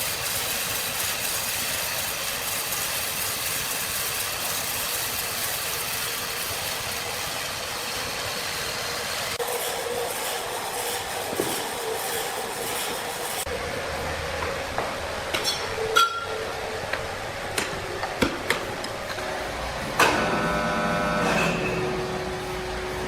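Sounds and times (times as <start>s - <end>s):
steady machinery noise: 0.0s - 23.0s
loud ringing metal clang: 15.4s - 16.4s.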